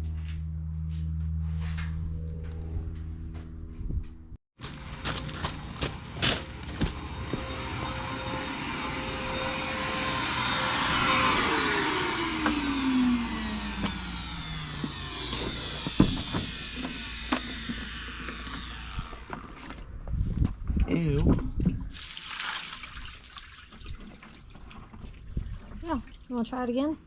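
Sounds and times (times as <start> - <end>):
vacuum whining: 0.1 - 20.7
scattered clicks and knocks: 14.7 - 19.8.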